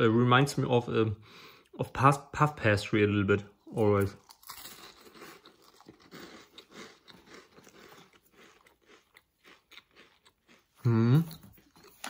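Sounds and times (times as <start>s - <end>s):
person chewing crunchy pastry: 3.6s - 12.0s.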